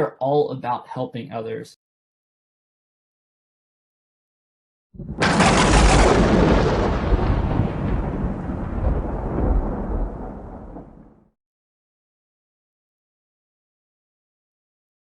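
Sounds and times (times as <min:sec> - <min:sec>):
thunder crack and rumble: 0:05.0 - 0:11.3.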